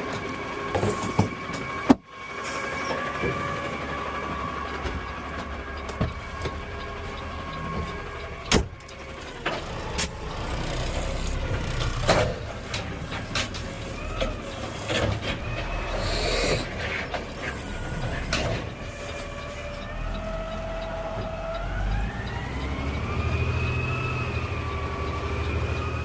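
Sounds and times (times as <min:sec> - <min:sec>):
garbage truck rumbling: 0:00.0 - 0:26.0
sharp knocks and clanks: 0:00.1 - 0:02.1, 0:04.7 - 0:20.2.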